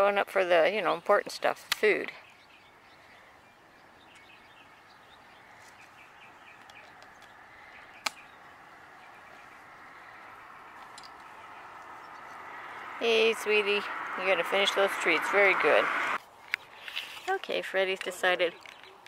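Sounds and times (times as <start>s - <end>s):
faint outdoor background: 0.0s - 19.0s
bird chirps: 2.1s - 15.9s.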